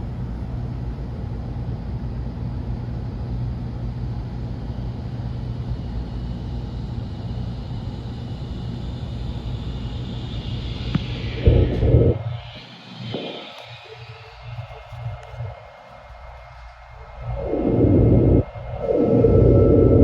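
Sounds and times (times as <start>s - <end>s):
train cabin rumble and hum: 0.0s - 20.0s
hiss: 7.2s - 17.9s.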